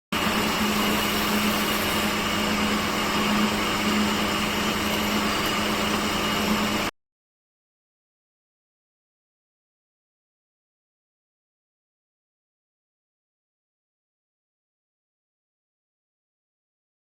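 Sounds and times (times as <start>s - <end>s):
woodworking machine motor humming: 0.2s - 6.9s.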